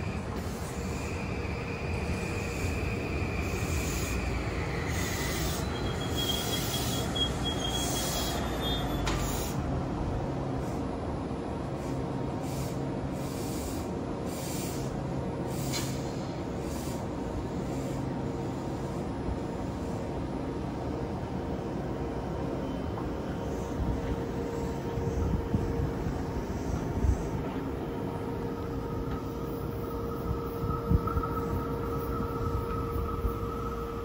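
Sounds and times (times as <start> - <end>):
train wheels rumbling on rail: 0.0 - 34.0
high wheel squeal: 0.3 - 9.6.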